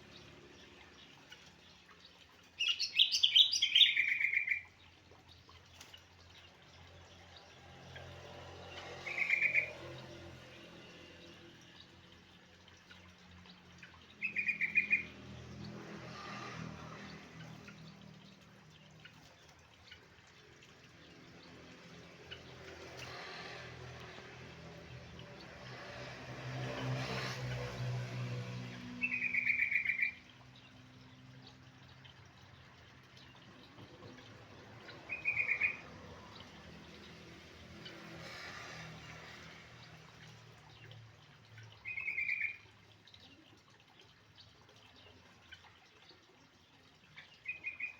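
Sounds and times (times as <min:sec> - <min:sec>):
bird singing rapid phrases: 0:00.1 - 0:04.9, 0:09.0 - 0:10.0, 0:13.8 - 0:15.2, 0:29.0 - 0:30.7, 0:34.9 - 0:36.0, 0:41.8 - 0:42.6, 0:47.1 - 0:47.9.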